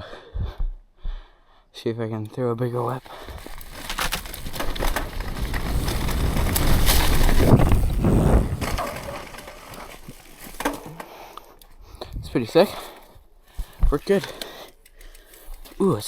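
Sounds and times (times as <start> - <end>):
bike tyres rolling on dirt: 2.7 - 11.3
wind rushing over microphone: 4.4 - 9.2.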